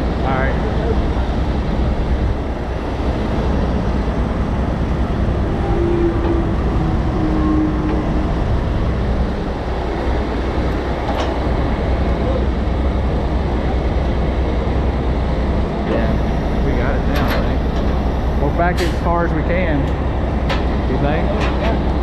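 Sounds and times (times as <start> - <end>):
diesel truck engine rumbling: 0.0 - 22.0
short whining tones: 15.9 - 19.3.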